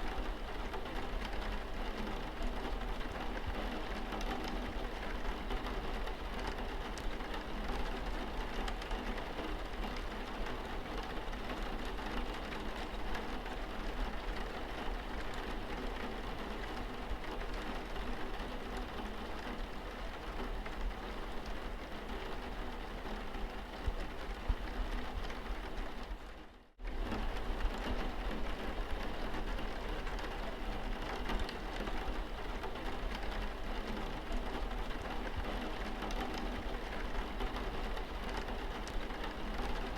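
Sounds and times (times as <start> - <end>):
rain on car windscreen: 0.1 - 39.9.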